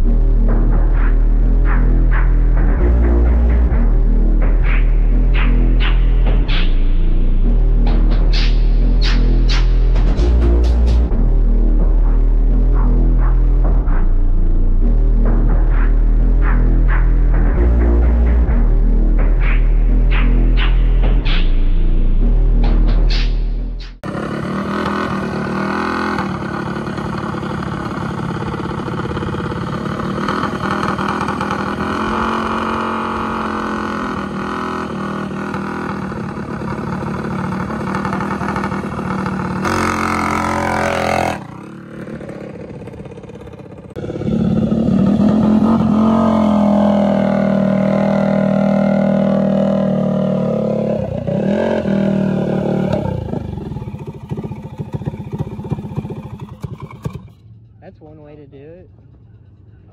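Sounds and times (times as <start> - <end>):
mini bike engine running: 24.0 - 50.5, 52.5 - 57.4.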